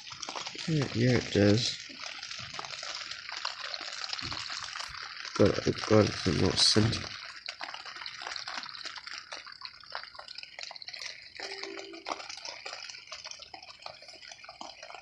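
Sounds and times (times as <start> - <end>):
rain on a tent: 0.0 - 15.0
brief low tone: 11.4 - 12.3.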